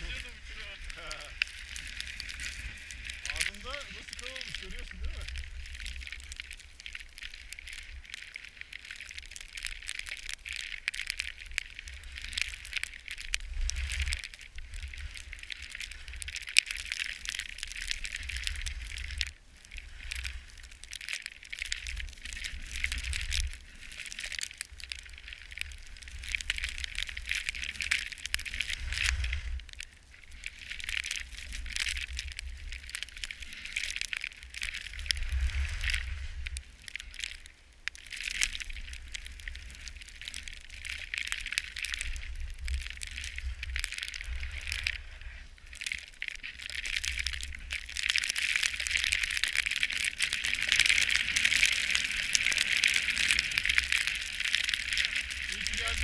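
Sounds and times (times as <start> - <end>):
ski edges scraping snow: 0.0 - 5.3
wind rumbling on microphone: 0.0 - 56.0.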